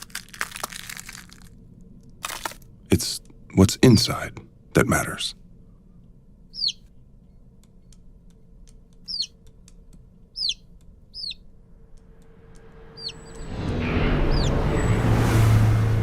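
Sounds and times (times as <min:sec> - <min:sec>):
high bird chirps: 0:06.5 - 0:06.9, 0:09.0 - 0:09.4, 0:10.3 - 0:11.5, 0:12.8 - 0:15.0
faint regular ticking: 0:07.1 - 0:11.2
rushing noise with low rumble: 0:11.6 - 0:16.0.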